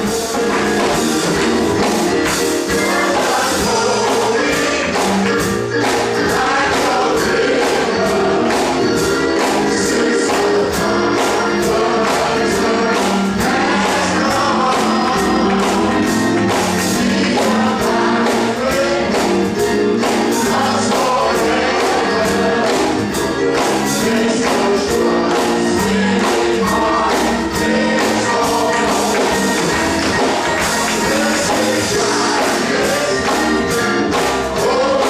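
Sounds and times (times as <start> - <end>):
gospel choir singing: 0.0 - 35.0
instrumental accompaniment: 0.0 - 35.0
steady drum beat: 0.0 - 35.0.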